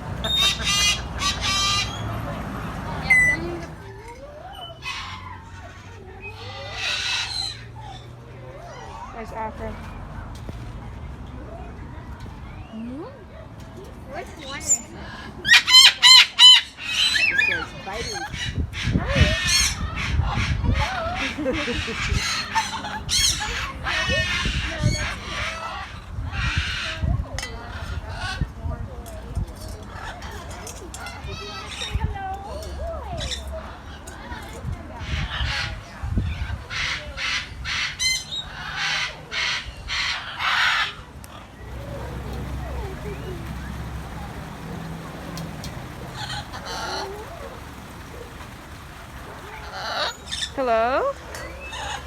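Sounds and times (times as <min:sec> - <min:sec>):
birds squawking harshly: 0:00.0 - 0:03.8, 0:04.5 - 0:08.1, 0:14.4 - 0:28.5, 0:35.0 - 0:52.0
bird squawks: 0:00.2 - 0:02.2, 0:03.0 - 0:03.7, 0:36.8 - 0:52.0.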